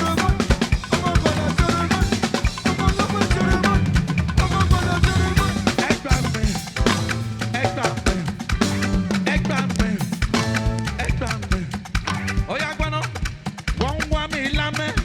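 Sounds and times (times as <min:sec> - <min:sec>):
bass drum and snare beat: 0:00.0 - 0:15.0
gospel band playing: 0:00.0 - 0:15.0.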